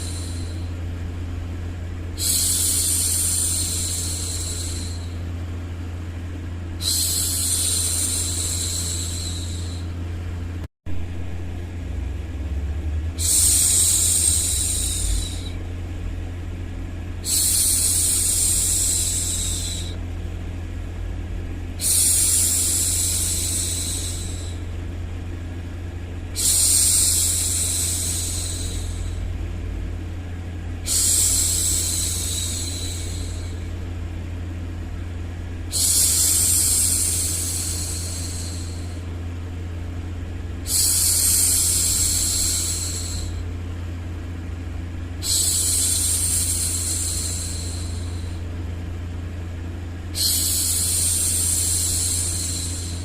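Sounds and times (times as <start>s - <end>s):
low white-noise rumble: 0.0s - 53.0s
woman shushing: 6.8s - 9.9s, 13.2s - 15.6s, 17.2s - 20.0s, 30.8s - 33.6s, 45.2s - 48.5s, 50.2s - 53.0s.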